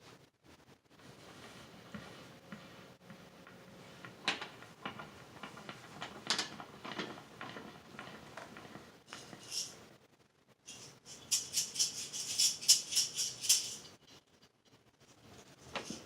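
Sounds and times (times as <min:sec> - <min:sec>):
faint steady hum: 0:00.0 - 0:16.0
scraping and tapping: 0:01.2 - 0:09.8.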